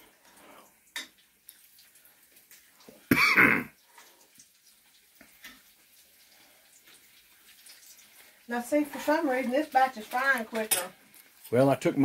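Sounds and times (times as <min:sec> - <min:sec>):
oil bubbling in a frying pan: 0:00.0 - 0:12.0
person clearing throat: 0:03.1 - 0:03.8.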